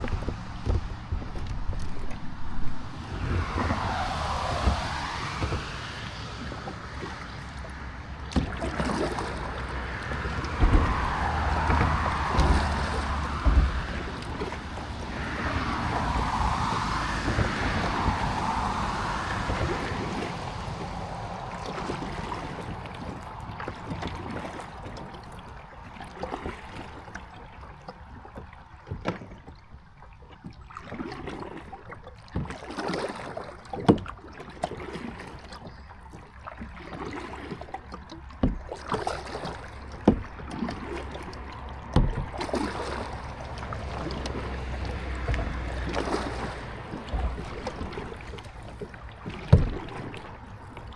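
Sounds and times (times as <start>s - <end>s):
paddle splashing into water: 0.0s - 50.9s
rushing noise: 1.0s - 7.0s, 9.7s - 24.6s
sharp knocks: 10.6s - 14.6s.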